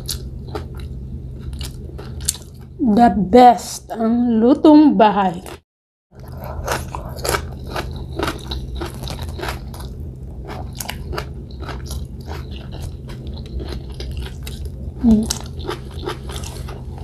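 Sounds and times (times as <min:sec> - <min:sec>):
chewing with crisp crunches: 0:00.0 - 0:02.7, 0:06.2 - 0:17.0
low steady hum: 0:00.0 - 0:17.0.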